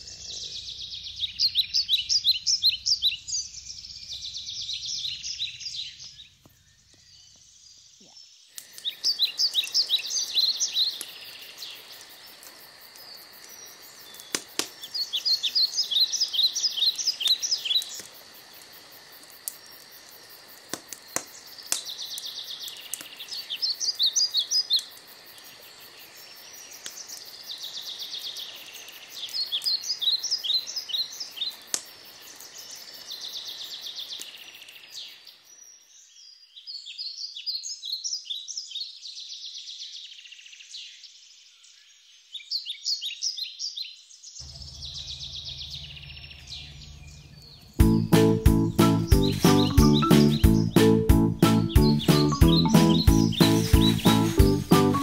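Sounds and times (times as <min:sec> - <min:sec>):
outdoor background noise: 0:00.0 - 0:55.0
songbird trilling: 0:49.0 - 0:55.0.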